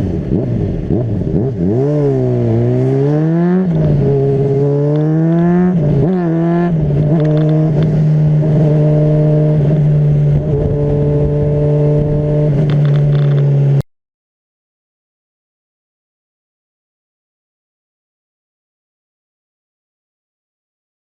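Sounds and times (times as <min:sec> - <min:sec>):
motorcycle engine revving: 0:00.0 - 0:13.8.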